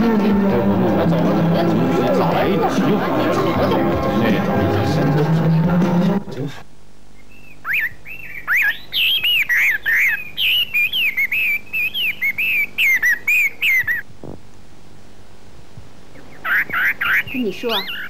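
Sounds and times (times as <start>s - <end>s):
songbird chirping: 7.1s - 14.1s, 16.0s - 18.0s.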